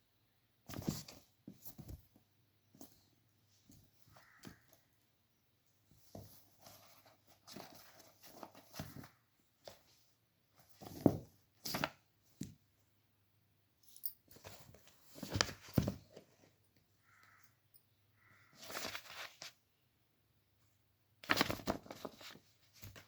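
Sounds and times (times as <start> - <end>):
kitten scuffling and scratching: 0.7 - 5.0, 5.8 - 12.7, 14.2 - 16.6, 18.5 - 19.6, 21.2 - 23.0.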